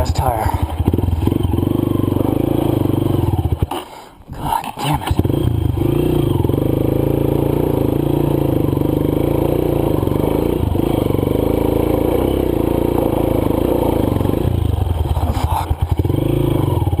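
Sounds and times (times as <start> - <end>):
dirt bike engine revving high: 0.0 - 3.8, 5.2 - 17.0.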